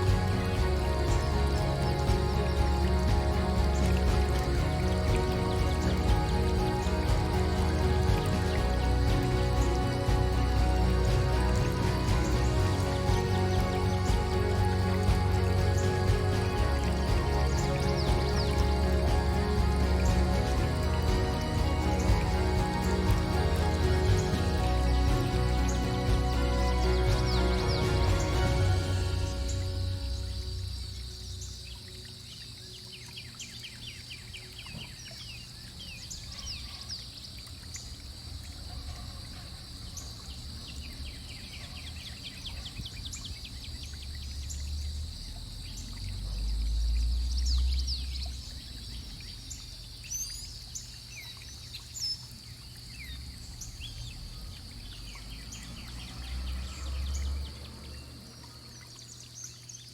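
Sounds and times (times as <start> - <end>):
low rumbles: 0.0 - 32.0
birds chirping and trilling: 0.0 - 59.9
fountain water trickling and splashing: 0.0 - 59.9.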